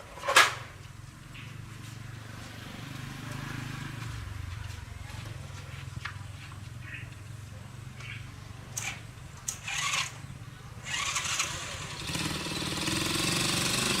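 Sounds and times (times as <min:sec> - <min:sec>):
motorbike engine running: 0:10.8 - 0:14.0.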